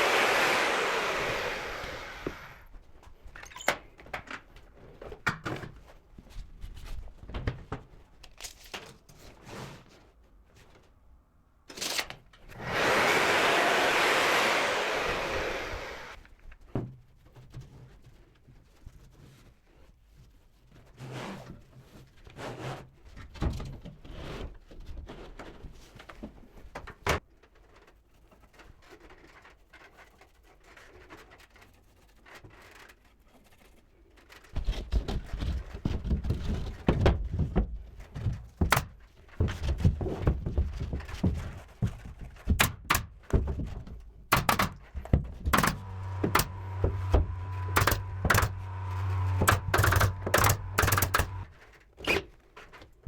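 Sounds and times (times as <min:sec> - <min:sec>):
small motor running: 0:00.0 - 0:02.6, 0:12.6 - 0:16.2, 0:45.6 - 0:51.5
knocks and thuds on wood: 0:35.9 - 0:51.5.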